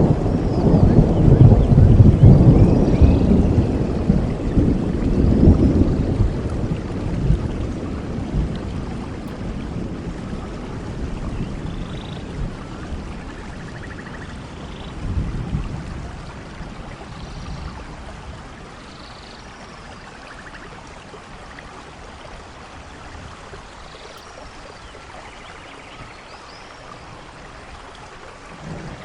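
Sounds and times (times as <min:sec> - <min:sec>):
steady rainfall: 0:00.0 - 0:29.0.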